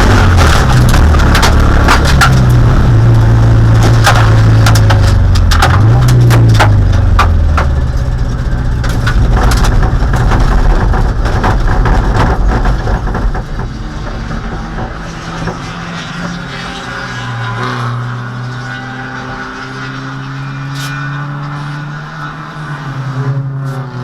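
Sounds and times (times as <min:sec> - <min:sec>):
race car engine running: 0:00.0 - 0:24.0
sharp clicking rattles: 0:03.7 - 0:15.6.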